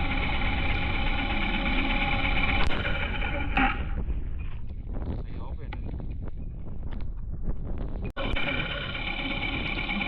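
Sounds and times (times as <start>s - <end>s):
motorcycle engine running: 0.0s - 4.4s, 8.2s - 10.0s.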